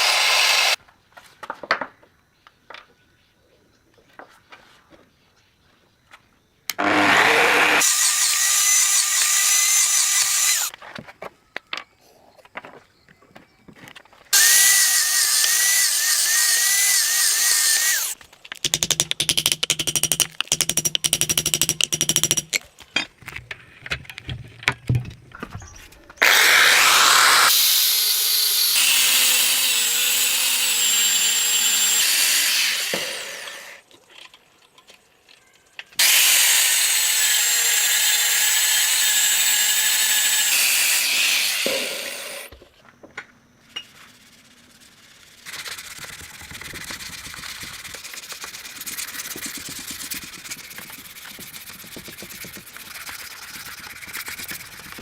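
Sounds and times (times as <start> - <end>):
electric power tool motor: 0.0 - 0.8, 6.8 - 10.7, 14.4 - 18.2, 26.2 - 33.8, 36.0 - 42.5
rapid repeated strokes: 43.9 - 55.0.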